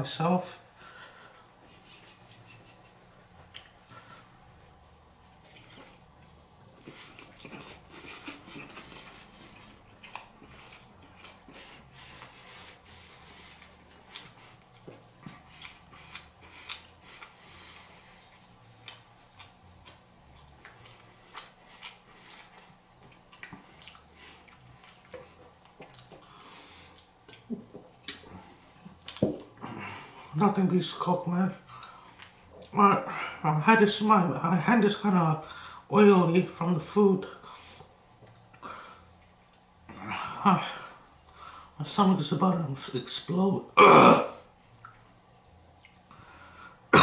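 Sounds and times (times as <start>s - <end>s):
chewing and mouth noises: 2.0s - 30.3s, 38.1s - 40.0s, 44.5s - 46.1s.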